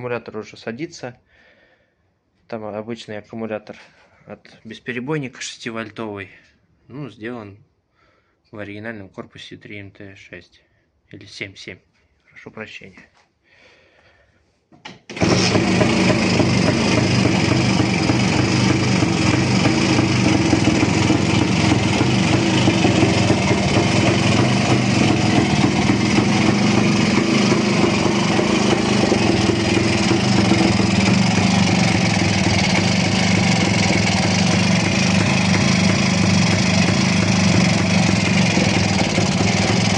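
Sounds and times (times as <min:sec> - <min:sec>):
two-stroke motorcycle engine running: 0:15.2 - 0:39.9.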